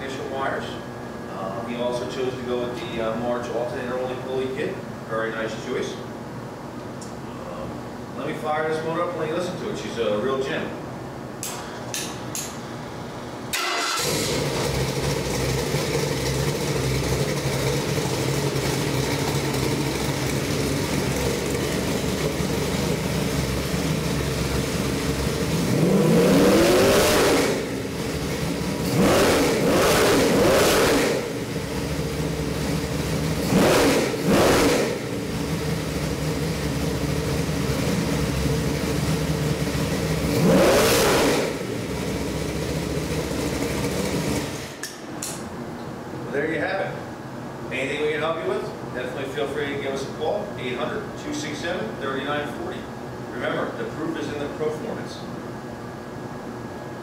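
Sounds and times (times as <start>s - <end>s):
engine starting: 13.5s - 15.2s
engine idling: 13.5s - 45.0s
engine revving: 13.6s - 44.8s.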